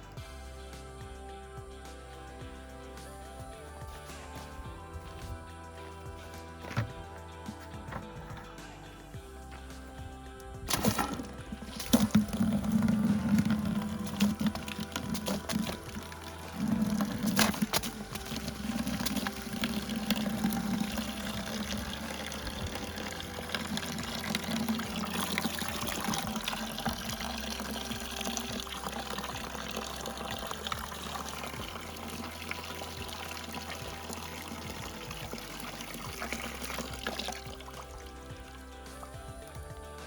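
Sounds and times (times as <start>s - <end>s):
quiet background music: 0.0s - 40.0s
water pouring and splashing: 10.6s - 40.0s.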